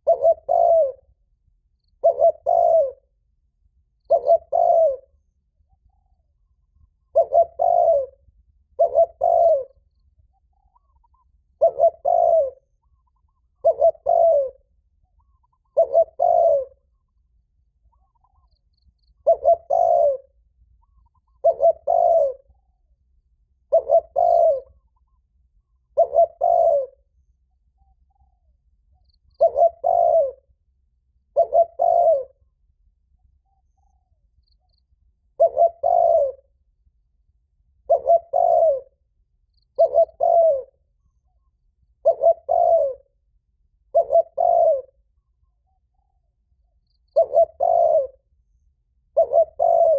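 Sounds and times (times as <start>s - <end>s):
dove two-note cooing: 0.0s - 1.2s, 1.9s - 3.2s, 4.0s - 5.2s, 6.8s - 9.9s, 10.6s - 16.9s, 19.1s - 22.7s, 23.6s - 25.0s, 25.9s - 27.1s, 29.2s - 30.6s, 31.3s - 32.4s, 35.2s - 36.6s, 37.8s - 39.0s, 39.7s - 40.9s, 42.0s - 43.2s, 43.8s - 45.2s, 47.0s - 48.4s, 49.0s - 49.9s.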